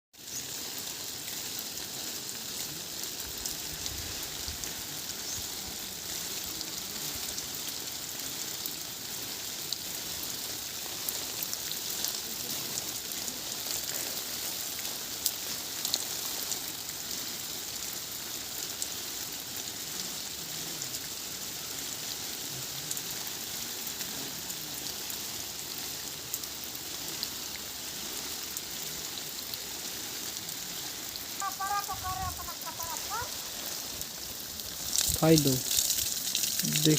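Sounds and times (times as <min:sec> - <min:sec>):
heavy rain pouring: 0:00.2 - 0:36.9
single raindrops ticking: 0:30.3 - 0:36.9.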